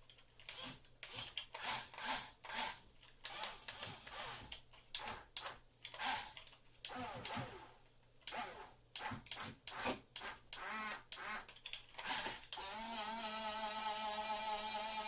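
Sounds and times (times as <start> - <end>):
toy excavator motors whirring: 0.4 - 15.0.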